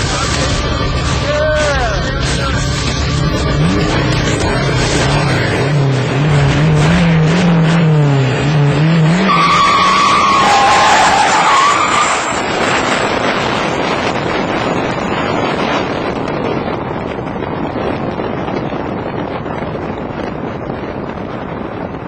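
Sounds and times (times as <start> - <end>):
pickup truck engine revving: 0.0 - 17.3
high squeal: 9.3 - 12.4.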